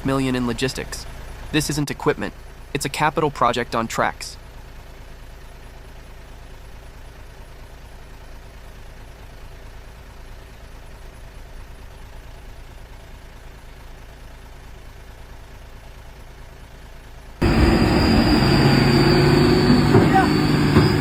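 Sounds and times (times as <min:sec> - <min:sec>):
heavy diesel engine running: 0:04.4 - 0:21.0.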